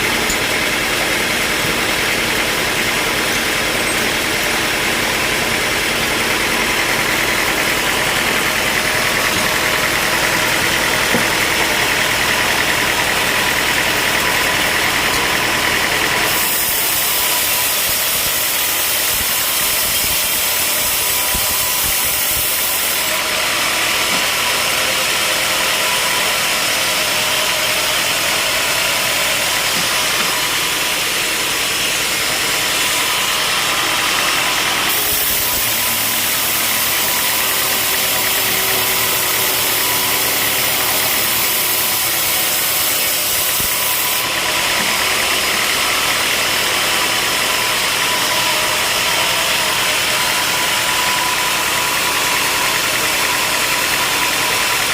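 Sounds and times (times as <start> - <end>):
sawmill machinery humming: 0.0 - 54.9.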